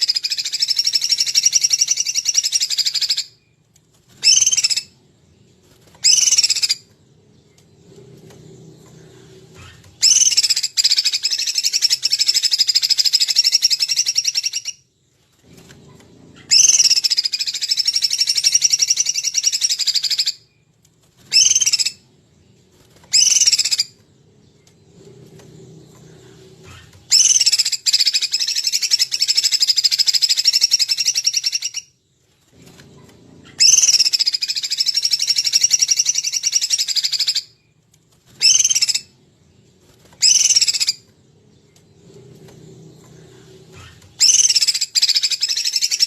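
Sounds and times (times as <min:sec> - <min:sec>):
songbird buzzy trills: 0:00.0 - 0:46.0.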